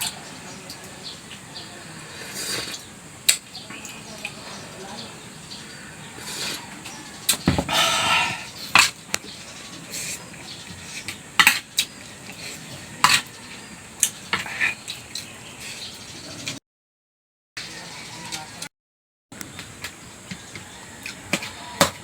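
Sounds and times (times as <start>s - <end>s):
cutlery clinking on a plate: 12.7s - 13.3s.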